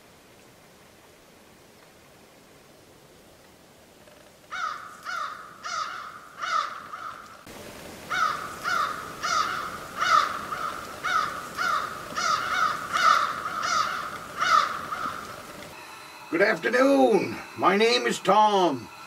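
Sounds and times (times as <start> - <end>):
faint background hiss: 0.0 - 19.0
bird harsh caw-like calls: 4.5 - 7.4, 8.0 - 15.8.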